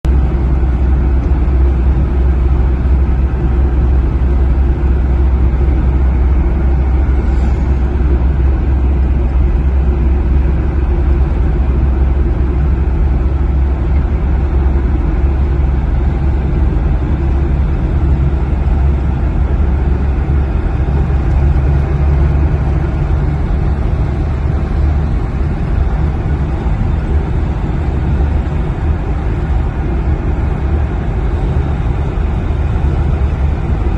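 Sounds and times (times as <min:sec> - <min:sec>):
car road noise rumble: 0:00.0 - 0:33.9
tyres hissing on wet road: 0:07.2 - 0:08.0.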